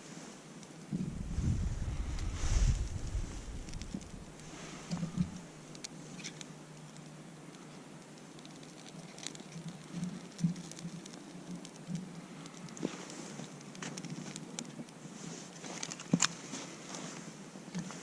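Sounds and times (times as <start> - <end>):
light crackles and taps: 0.6 - 18.0
low steady hum: 0.9 - 7.5.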